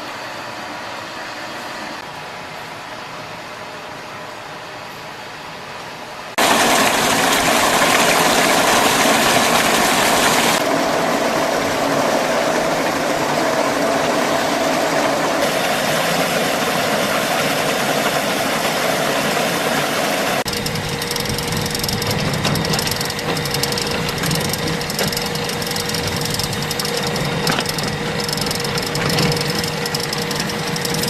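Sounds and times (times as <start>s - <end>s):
machine engine running loudly: 6.4s - 31.0s.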